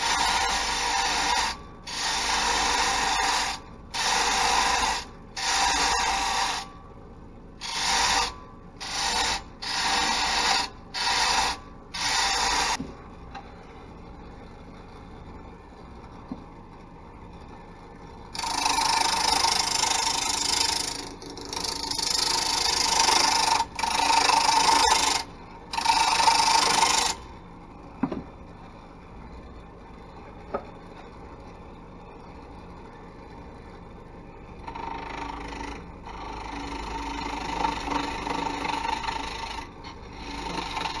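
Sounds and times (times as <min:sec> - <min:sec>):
lathe tool scraping wood: 0:00.0 - 0:06.7, 0:07.6 - 0:12.8, 0:18.4 - 0:27.2, 0:34.6 - 0:41.0
lathe humming: 0:00.0 - 0:06.8, 0:07.6 - 0:13.2, 0:15.5 - 0:27.7, 0:32.0 - 0:41.0.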